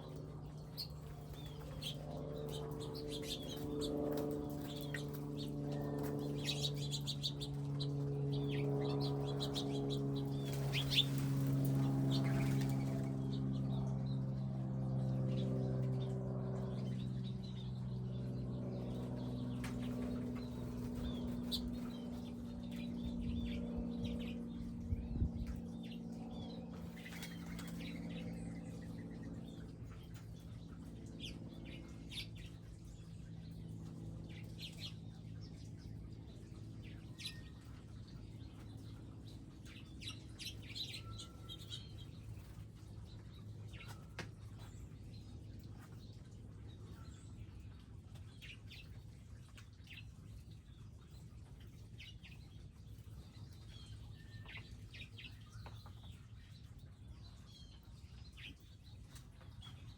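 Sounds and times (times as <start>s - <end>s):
low steady hum: 0.0s - 59.9s
small birds chirping: 0.0s - 59.9s.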